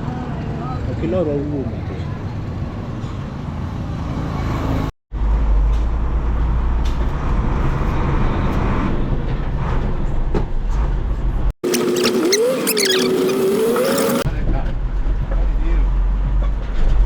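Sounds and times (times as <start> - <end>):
truck engine driving: 11.6 - 14.3.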